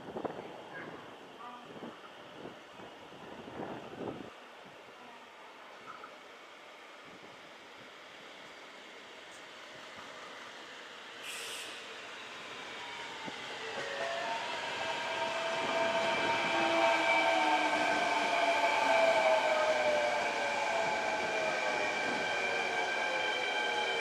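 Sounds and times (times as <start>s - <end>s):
electric train approaching: 10.1s - 24.0s
short hiss: 11.2s - 12.0s.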